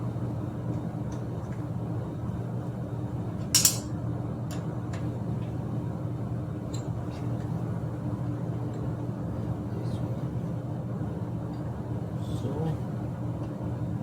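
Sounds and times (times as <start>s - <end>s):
metal tools clinking: 3.6s - 3.9s.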